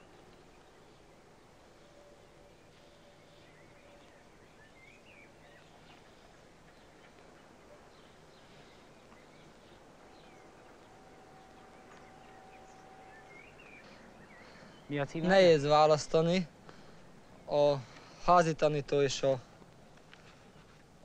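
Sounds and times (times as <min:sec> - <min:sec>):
faint bird chirps: 0:00.0 - 0:15.5
faint steady hiss: 0:00.0 - 0:21.0
faint steady hum: 0:00.0 - 0:21.0.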